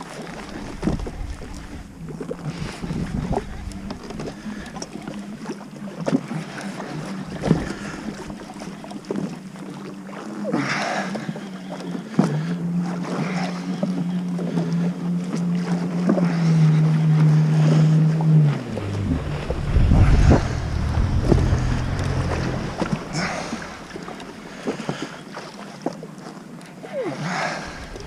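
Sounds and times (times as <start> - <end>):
jet ski engine running: 0.0 - 28.0
wind buffeting microphone: 0.3 - 5.1, 18.4 - 25.0, 27.6 - 28.0
water splashing: 16.7 - 26.4, 27.2 - 28.0.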